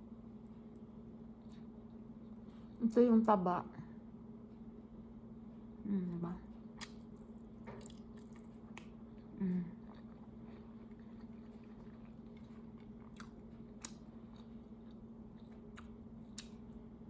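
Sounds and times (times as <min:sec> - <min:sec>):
close-up chewing: 0:00.3 - 0:02.8, 0:06.8 - 0:16.8
wet mouth smacks and clicks: 0:06.8 - 0:07.2, 0:15.7 - 0:16.6.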